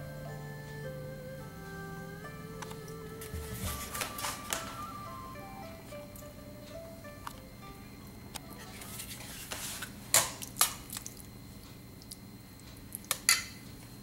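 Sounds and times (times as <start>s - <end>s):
utensil clinking on metal bowl: 13.1s - 13.6s.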